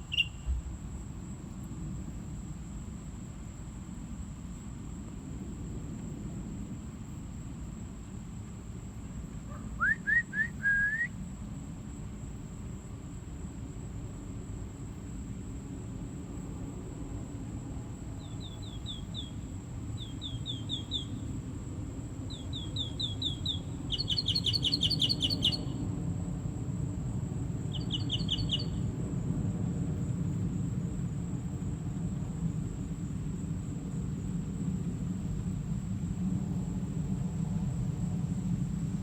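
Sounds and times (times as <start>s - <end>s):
songbird chirping: 0.0s - 0.6s, 18.2s - 21.3s, 22.3s - 25.9s, 27.7s - 28.9s.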